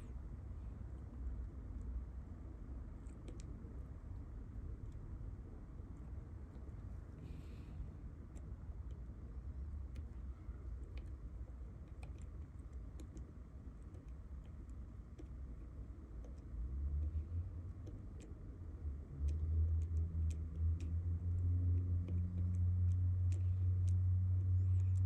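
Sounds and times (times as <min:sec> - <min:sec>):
light ticks: 0:05.7 - 0:25.0.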